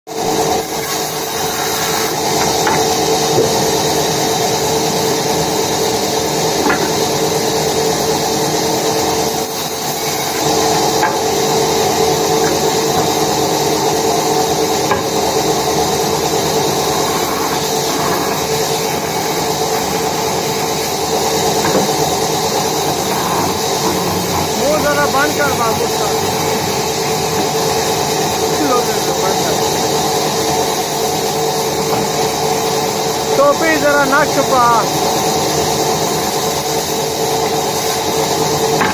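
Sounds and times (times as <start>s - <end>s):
woodworking machinery humming: 0.1s - 38.9s
faint knocks: 6.6s - 7.2s, 10.4s - 13.3s, 14.9s - 15.4s, 21.6s - 22.2s.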